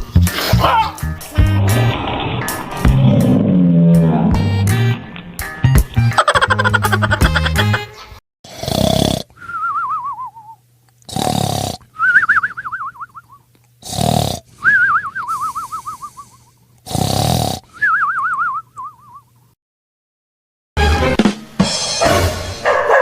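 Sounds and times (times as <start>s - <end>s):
cartoon rasping snore: 8.5s - 9.4s, 11.1s - 11.8s, 13.8s - 14.5s, 16.8s - 17.6s.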